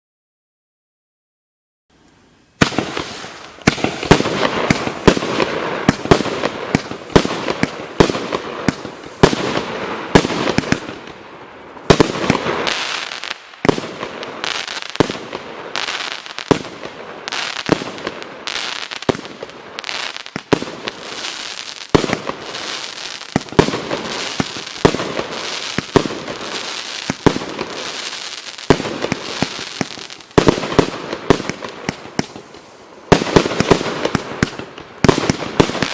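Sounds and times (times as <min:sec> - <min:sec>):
firework crackle: 0:02.0 - 0:35.9
firework launches and bursts: 0:02.1 - 0:11.2, 0:11.8 - 0:35.9.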